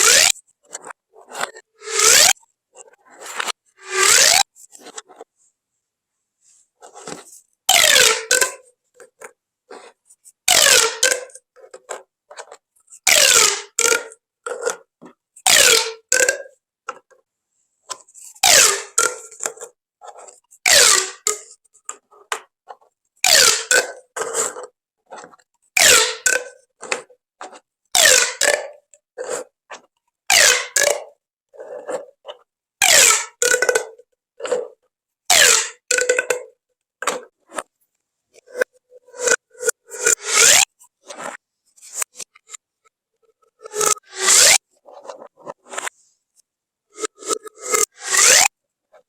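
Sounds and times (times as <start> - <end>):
pop tube ribbed zip: 0.0 - 0.4, 1.8 - 2.4, 3.8 - 4.5, 7.7 - 8.3, 10.5 - 10.9, 13.1 - 13.8, 15.5 - 16.3, 18.4 - 19.5, 20.7 - 21.3, 23.2 - 23.8, 25.8 - 26.4, 28.0 - 28.6, 30.3 - 30.9, 32.8 - 33.6, 35.3 - 36.0, 40.0 - 40.7, 43.7 - 44.6, 47.2 - 48.5
pop tube ratcheting pulls: 32.8 - 33.7.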